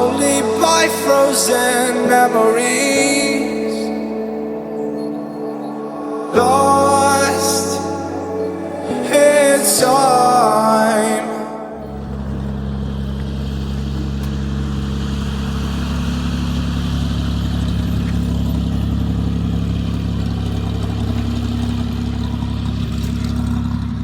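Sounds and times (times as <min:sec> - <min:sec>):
music: 0:00.0 - 0:12.6
propeller plane engine droning: 0:11.5 - 0:24.0.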